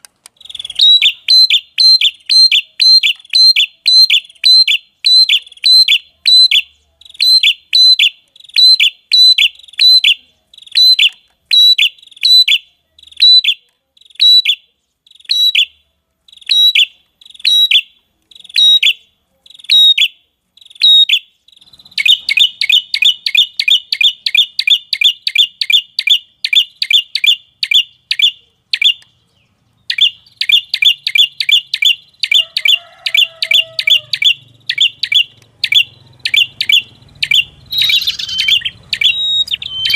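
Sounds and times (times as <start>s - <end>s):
sharp high bird chirps: 0.3s - 39.9s
fast rattling bird notes: 33.6s - 39.9s.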